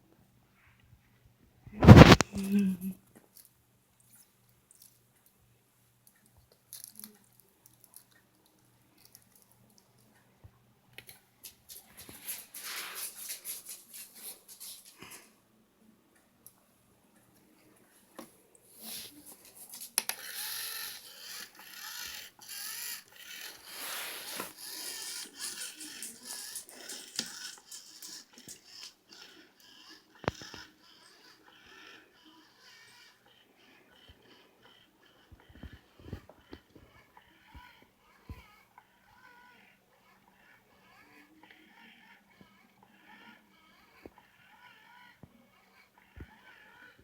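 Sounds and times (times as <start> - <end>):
kitten scratching and rustling: 1.8 - 2.5, 11.5 - 15.3, 18.8 - 29.0.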